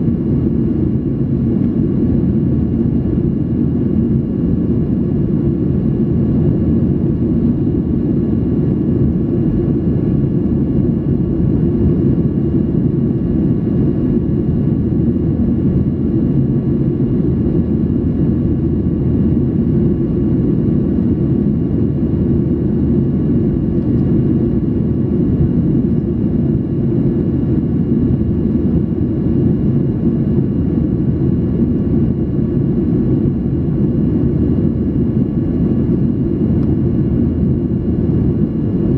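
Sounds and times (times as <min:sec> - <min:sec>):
airplane cabin noise: 0:00.0 - 0:38.9.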